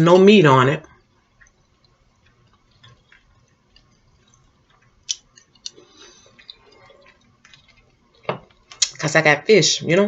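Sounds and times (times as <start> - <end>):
eating salad clicks: 1.3 - 7.9.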